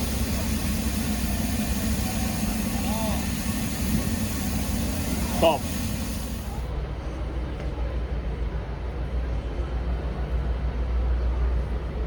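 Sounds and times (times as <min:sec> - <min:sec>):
locomotive idling rumble: 0:00.0 - 0:06.8.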